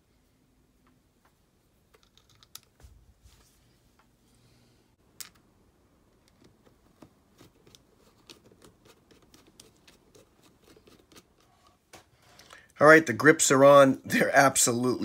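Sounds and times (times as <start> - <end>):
small clicks and scrapes: 1.9 - 2.9, 6.2 - 12.7.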